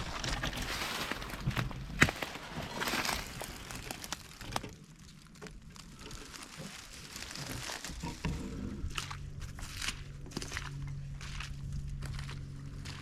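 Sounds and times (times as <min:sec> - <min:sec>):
footsteps crunching through leaves: 0:00.0 - 0:04.4, 0:05.6 - 0:08.2, 0:08.8 - 0:13.0.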